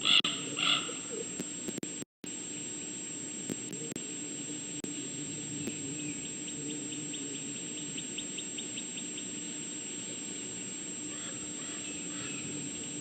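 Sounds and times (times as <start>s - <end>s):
faint bird calls: 0.0s - 1.4s, 3.8s - 10.3s, 11.0s - 13.0s
steady background hum: 0.0s - 13.0s
insect chirping: 2.6s - 13.0s.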